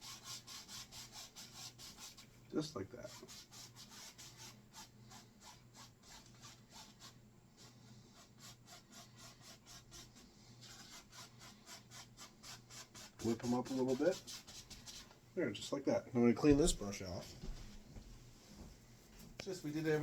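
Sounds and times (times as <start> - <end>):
paintbrush scrubbing a surface: 0.0 - 15.1.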